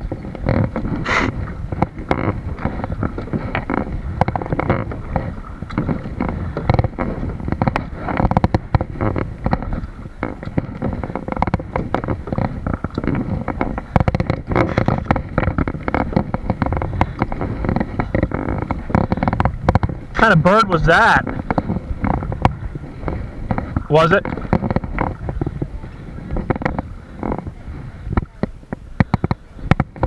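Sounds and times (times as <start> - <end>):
wind on microphone: 0.0 - 20.2, 21.2 - 30.0
paddle water splashing: 0.4 - 8.0.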